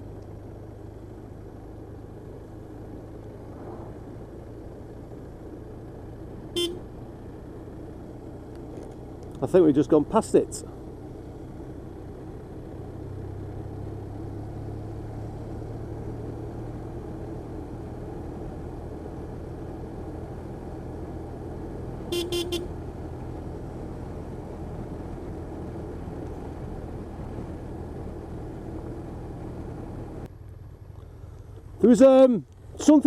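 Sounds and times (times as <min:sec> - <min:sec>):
motorcycle engine cruising: 0:00.0 - 0:33.0
road and wind noise: 0:00.0 - 0:33.0
horn toots: 0:06.5 - 0:06.9, 0:22.1 - 0:22.8.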